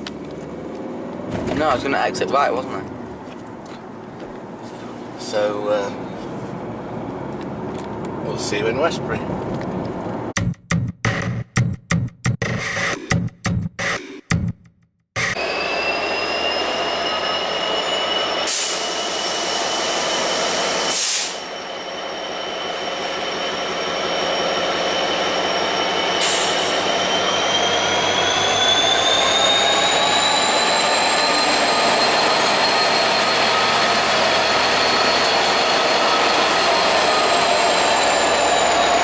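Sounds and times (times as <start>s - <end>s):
high-pitched wheel squeal: 15.2s - 39.0s
train moving: 15.2s - 39.0s.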